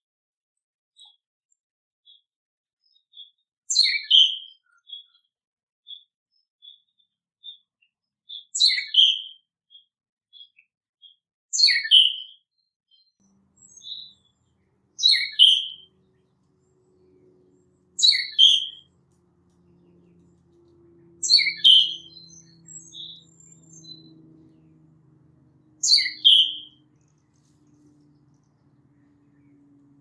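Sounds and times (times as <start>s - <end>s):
songbird two-part call: 13.6s - 14.2s, 15.0s - 16.3s, 16.9s - 19.0s, 19.8s - 30.0s.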